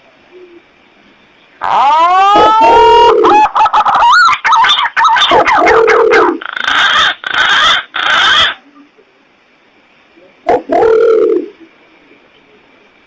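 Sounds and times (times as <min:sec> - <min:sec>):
recorded pigeon calls: 0:00.2 - 0:00.8, 0:01.6 - 0:08.6, 0:10.5 - 0:11.7.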